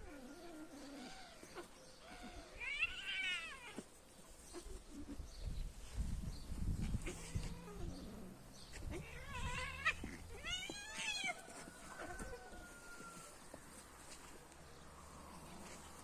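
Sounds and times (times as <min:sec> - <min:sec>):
cat yowling: 0:08.9 - 0:11.4.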